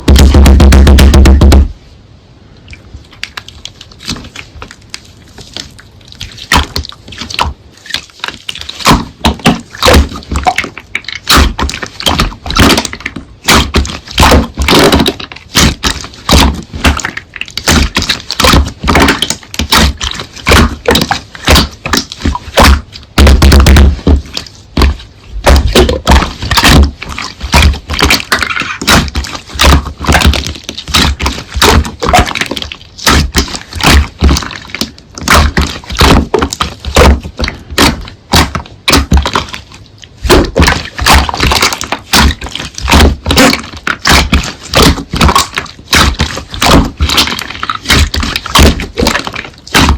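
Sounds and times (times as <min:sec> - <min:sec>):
slime popping and crackling: 0:00.0 - 0:01.7, 0:03.0 - 0:49.9.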